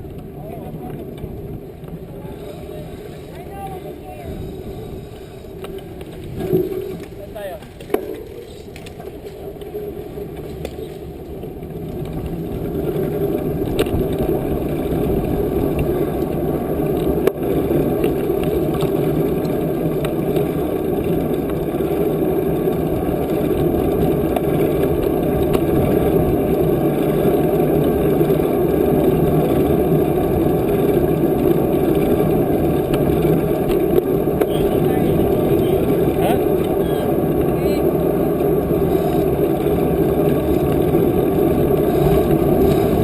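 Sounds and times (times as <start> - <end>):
wind rushing over microphone: 11.9 - 43.0.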